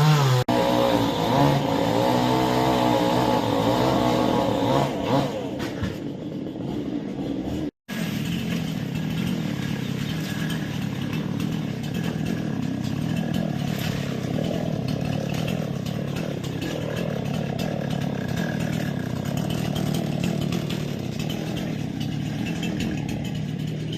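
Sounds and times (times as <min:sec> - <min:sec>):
small engine running: 0:00.0 - 0:23.9.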